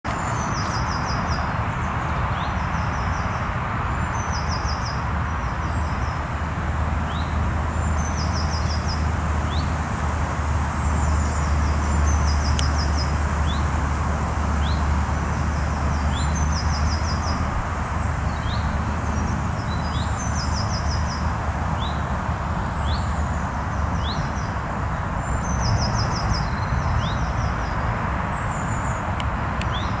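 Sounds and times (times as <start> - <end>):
songbirds trilling: 0.1 - 3.4, 10.6 - 30.0.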